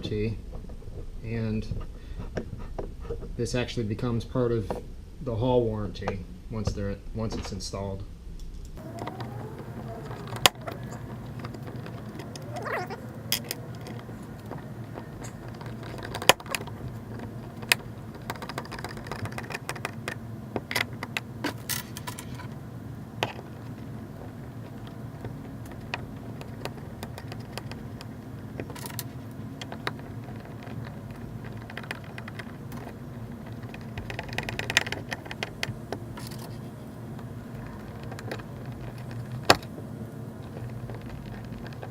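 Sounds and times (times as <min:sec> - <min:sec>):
low hum: 0:08.1 - 0:19.1.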